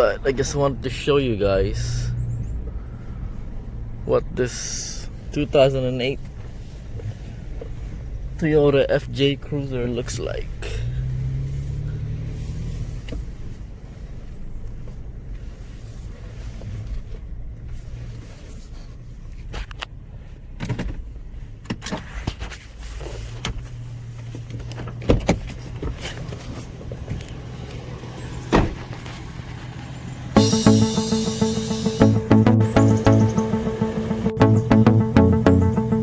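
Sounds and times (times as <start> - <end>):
car engine idling: 25.6 - 36.0.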